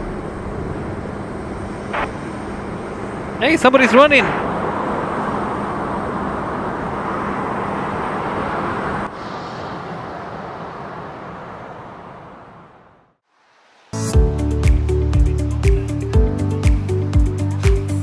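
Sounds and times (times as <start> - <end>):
faint steady hum: 0.0 - 8.0
turboprop engines rushing: 0.0 - 13.2.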